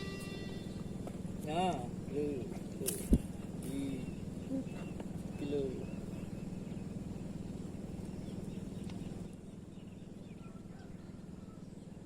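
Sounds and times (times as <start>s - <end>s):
faint bird chirps: 3.7s - 12.0s.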